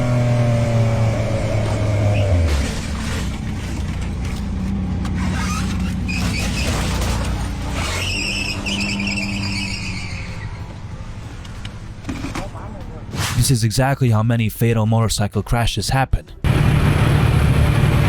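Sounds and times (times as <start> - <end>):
traffic engines rumbling: 0.0 - 13.7, 16.4 - 18.0
tyres skidding squeal: 1.8 - 3.3, 5.0 - 10.9.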